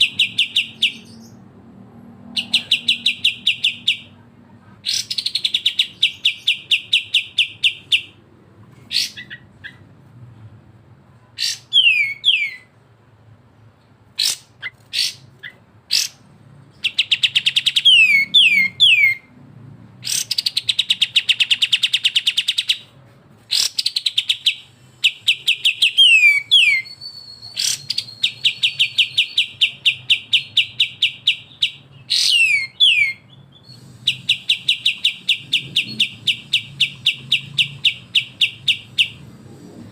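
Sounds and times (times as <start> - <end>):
bulbuls singing: 23.5 - 39.3.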